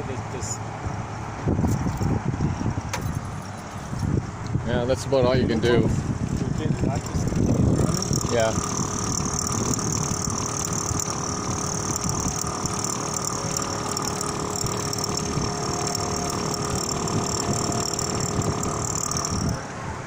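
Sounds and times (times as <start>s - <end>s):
truck engine running: 6.1s - 20.0s.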